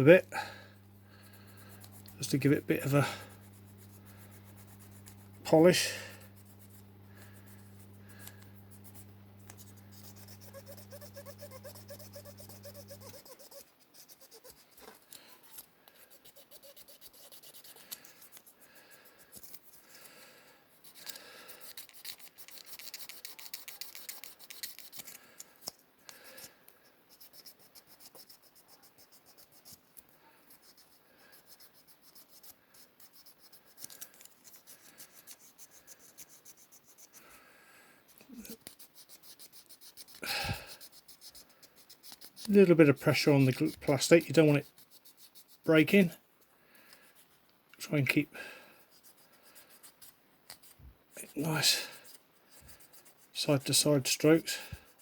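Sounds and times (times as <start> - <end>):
steady low hum: 0.0 - 13.3
scratchy rubbing of plastic window: 9.7 - 15.6.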